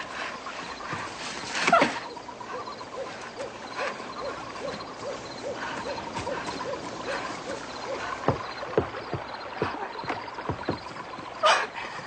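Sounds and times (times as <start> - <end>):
rustle: 0.0 - 8.3
soft knocks: 8.2 - 11.0.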